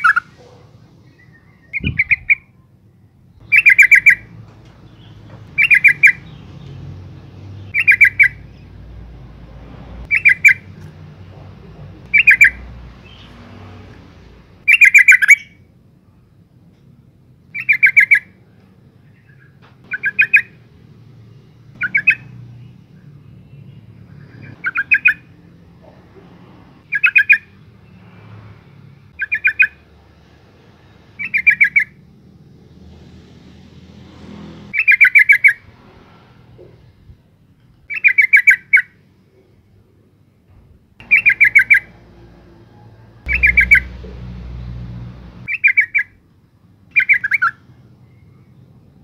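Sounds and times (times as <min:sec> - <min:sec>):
bird chattering calls: 0:03.4 - 0:04.3, 0:05.6 - 0:06.4, 0:07.7 - 0:08.6, 0:10.1 - 0:10.7, 0:12.0 - 0:13.3, 0:14.7 - 0:15.5, 0:19.9 - 0:20.6, 0:21.8 - 0:22.3, 0:24.2 - 0:25.4, 0:29.2 - 0:29.8, 0:34.8 - 0:35.6, 0:41.0 - 0:42.0, 0:43.2 - 0:44.4, 0:45.4 - 0:46.1, 0:46.9 - 0:47.6.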